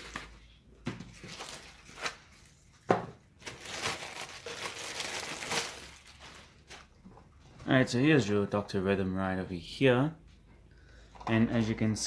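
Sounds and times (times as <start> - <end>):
packaging crinkling and rustling: 1.1 - 2.8, 3.4 - 7.2.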